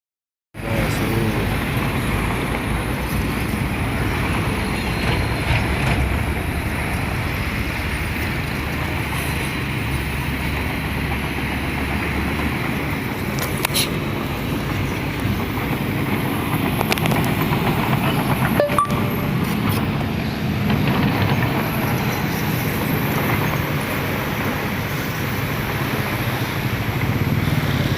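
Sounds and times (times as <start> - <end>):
excavator diesel engine: 0.6 - 27.9.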